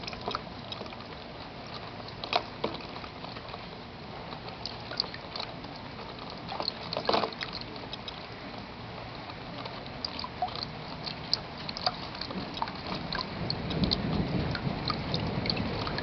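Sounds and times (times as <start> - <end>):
raindrops pattering and dripping: 0.0 - 16.0
rain falling: 10.9 - 16.0.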